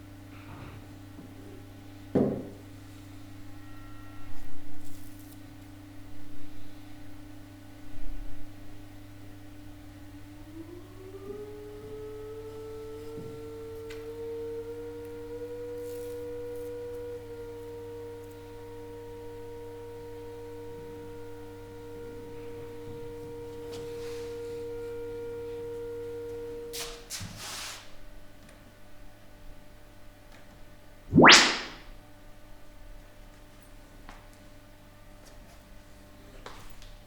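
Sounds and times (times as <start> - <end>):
sine test tones: 3.5 - 4.8, 14.8 - 26.7
low hum: 31.1 - 31.8.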